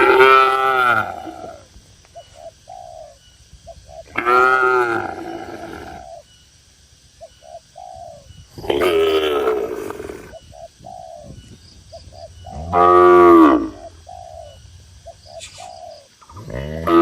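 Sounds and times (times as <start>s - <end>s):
dove cooing: 0.0s - 6.3s, 7.2s - 17.0s.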